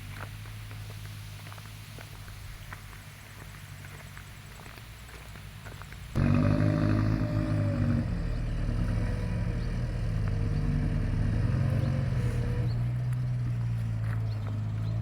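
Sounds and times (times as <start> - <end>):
diesel truck engine under load: 6.1 - 15.0.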